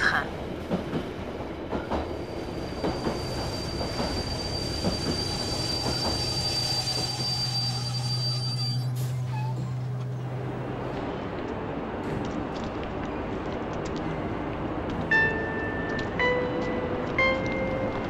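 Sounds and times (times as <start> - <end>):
train rumbling on rails: 0.0 - 18.0
high-pitched wheel squeal: 2.4 - 10.0.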